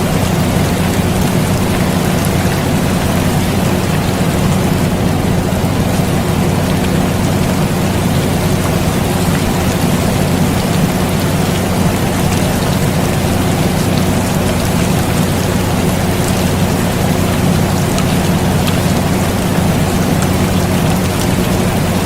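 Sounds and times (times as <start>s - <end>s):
air conditioner hum: 0.0s - 22.0s
steady rain: 0.0s - 22.0s.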